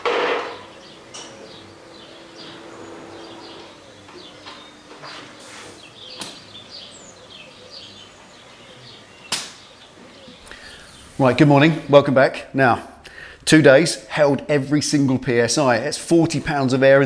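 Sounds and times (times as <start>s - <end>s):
small birds chirping: 0.0s - 12.4s.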